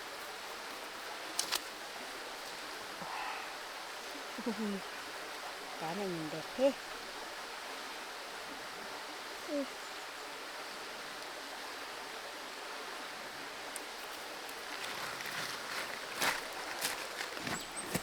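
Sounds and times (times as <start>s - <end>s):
creek water running: 0.0s - 18.0s
light rustling: 13.9s - 18.0s.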